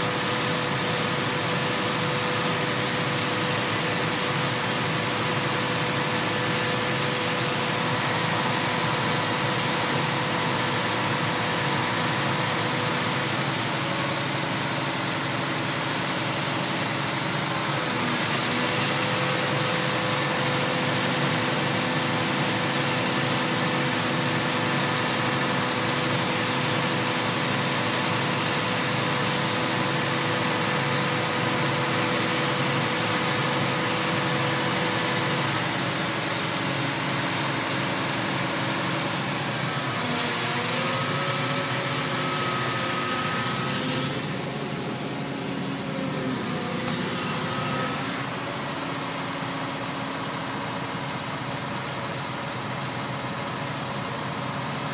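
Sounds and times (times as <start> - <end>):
motor humming with whine: 17.6 - 50.8.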